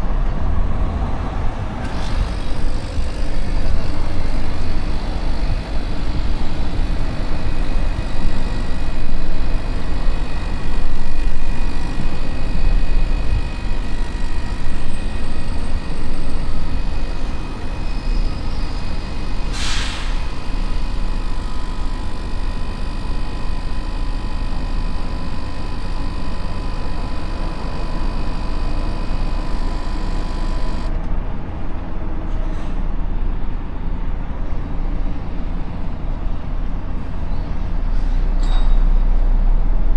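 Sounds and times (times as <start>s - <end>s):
diesel truck engine rumbling: 0.0s - 39.9s
short hiss: 19.5s - 20.3s.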